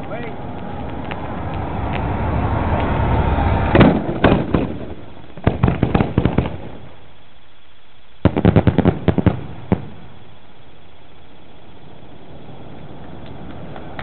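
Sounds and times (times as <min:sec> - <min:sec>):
fireworks bangs: 0:00.0 - 0:07.1, 0:08.2 - 0:10.2.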